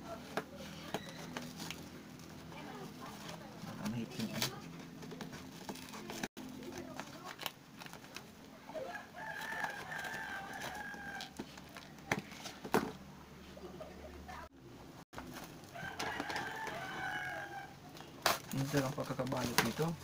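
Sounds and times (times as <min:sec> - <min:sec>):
packing tape and cardboard clicks: 0:04.1 - 0:08.4, 0:17.9 - 0:19.9.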